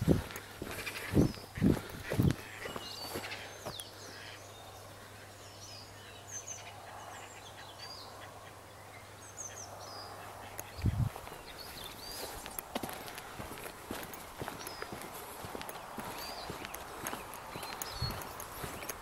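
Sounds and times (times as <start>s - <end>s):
birds chirping: 0.0s - 19.0s
faint outdoor background noise: 0.0s - 19.0s.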